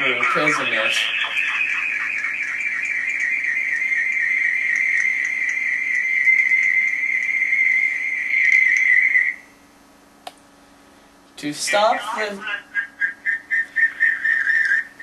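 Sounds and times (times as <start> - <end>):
high-pitched feedback whistle: 1.4 - 9.6.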